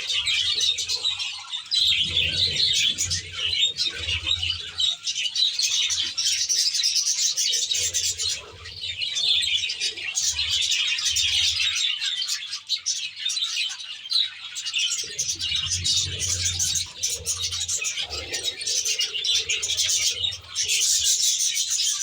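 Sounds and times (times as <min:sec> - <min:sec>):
budgerigars chattering: 0:00.0 - 0:22.0.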